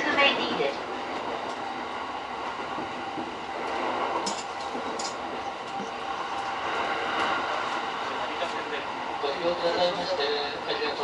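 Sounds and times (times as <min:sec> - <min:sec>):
electric train rolling noise: 0:00.0 - 0:11.0.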